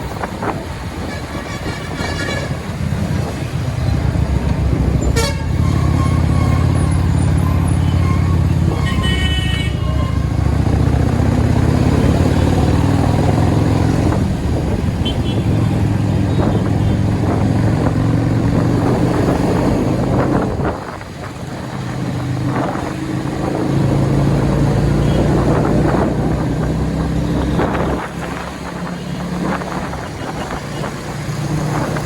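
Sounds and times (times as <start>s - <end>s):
vehicle horns honking: 1.0s - 2.8s, 5.0s - 10.6s, 15.0s - 15.7s.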